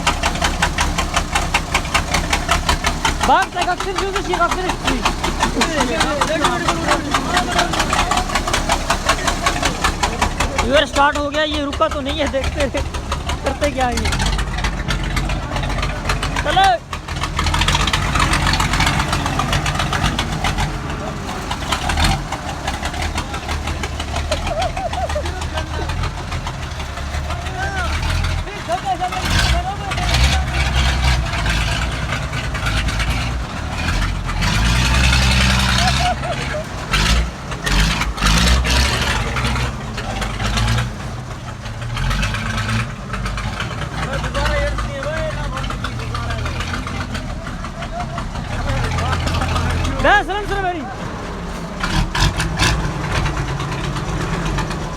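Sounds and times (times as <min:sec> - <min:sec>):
tractor diesel engine exhaust pulses: 0:00.0 - 0:54.9.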